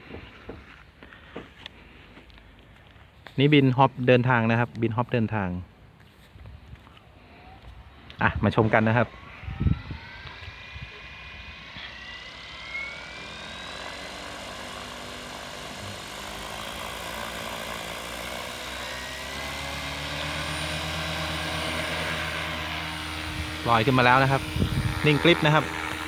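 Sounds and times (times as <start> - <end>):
rising motor whine: 7.3 - 26.0
helicopter rotor drone: 7.6 - 26.0.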